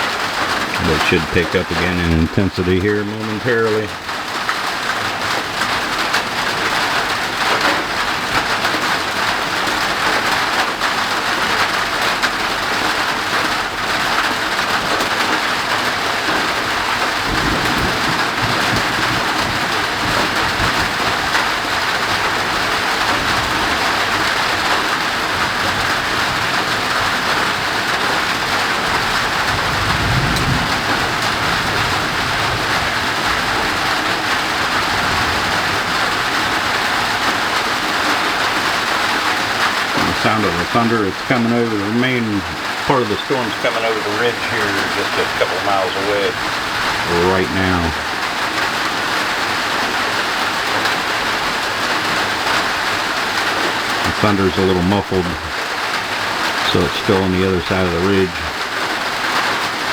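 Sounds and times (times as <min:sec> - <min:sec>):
heavy rain hissing: 0:00.0 - 0:59.9
distant thunder rumbles: 0:13.8 - 0:57.1.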